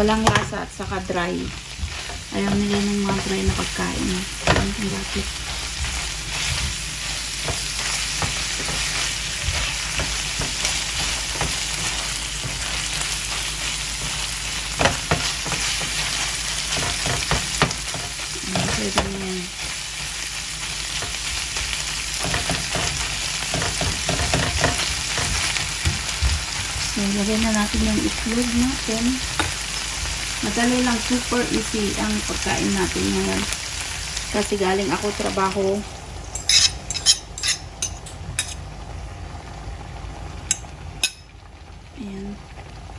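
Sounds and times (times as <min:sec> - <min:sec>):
food sizzling in oil: 0:00.0 - 0:42.9
spatula scraping and tapping pan: 0:01.7 - 0:14.2, 0:14.8 - 0:19.2, 0:22.2 - 0:27.0.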